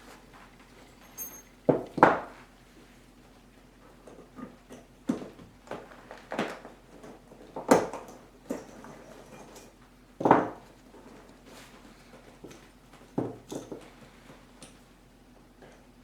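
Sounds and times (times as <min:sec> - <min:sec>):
metal clicks and clinks: 0:00.9 - 0:01.5.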